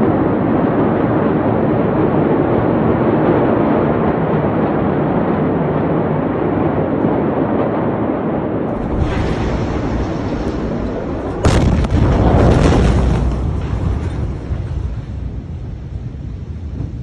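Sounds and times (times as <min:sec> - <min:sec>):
loud rumbling roar: 0:08.7 - 0:14.7.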